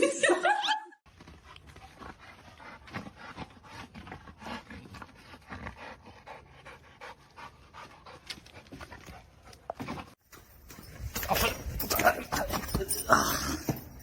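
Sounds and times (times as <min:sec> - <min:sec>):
dog panting: 0:01.2 - 0:10.2.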